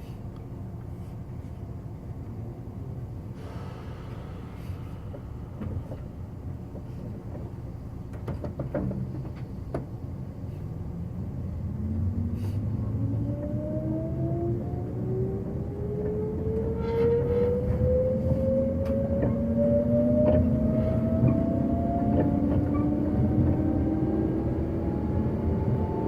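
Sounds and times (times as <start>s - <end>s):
train wheels rumbling on rail: 0.0s - 26.0s
sharp clicks and knocks: 6.7s - 9.9s
traction motor whine rising: 11.7s - 26.0s.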